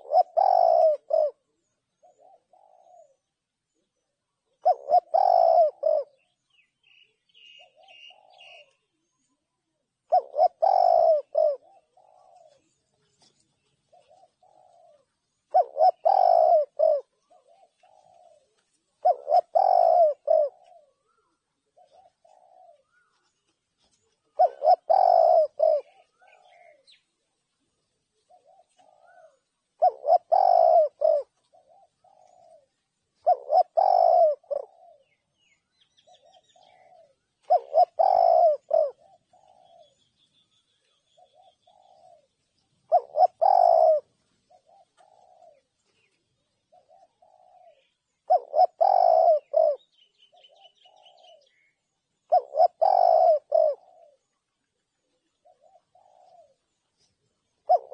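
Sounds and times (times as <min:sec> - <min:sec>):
dove cooing: 0:00.0 - 0:57.9.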